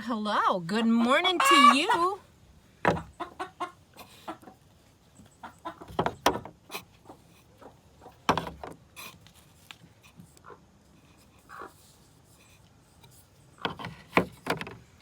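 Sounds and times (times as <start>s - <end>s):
hens clucking: 0.8s - 2.3s, 2.9s - 8.3s, 11.4s - 11.9s.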